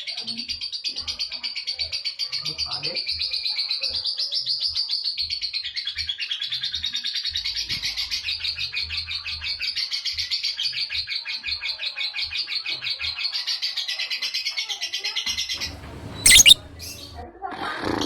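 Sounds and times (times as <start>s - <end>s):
lovebird rattling chatter: 15.6s - 17.1s.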